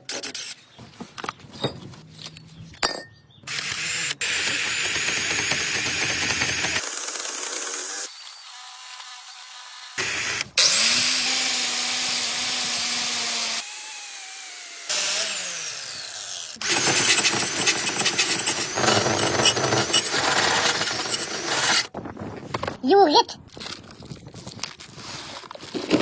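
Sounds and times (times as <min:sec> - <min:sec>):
loud rattling tool noise: 0:03.5 - 0:08.1, 0:14.9 - 0:21.9
power tool motor whining: 0:03.5 - 0:21.9.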